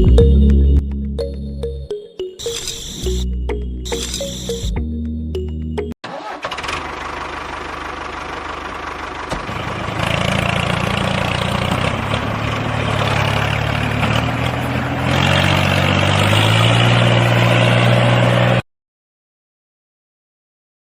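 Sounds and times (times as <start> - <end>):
small motor running: 3.9 - 4.7.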